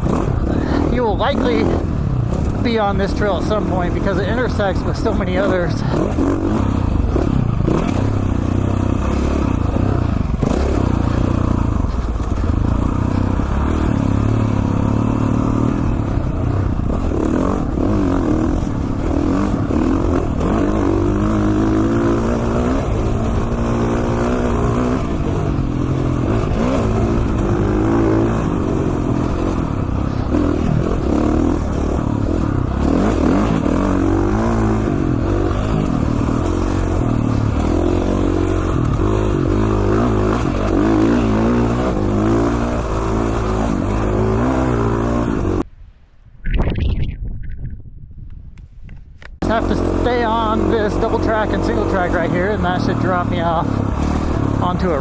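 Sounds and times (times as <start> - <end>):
dirt bike engine revving: 0.0 - 45.7, 49.4 - 55.0.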